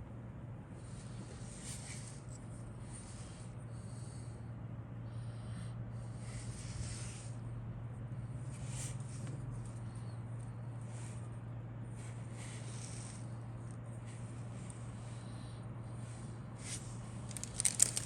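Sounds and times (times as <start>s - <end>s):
steady low hum: 0.0s - 18.0s
rustling of kit contents: 17.2s - 18.0s.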